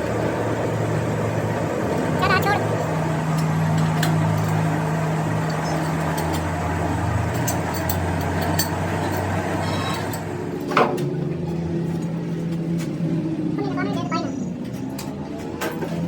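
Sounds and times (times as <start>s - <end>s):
machine hum: 0.0s - 10.8s.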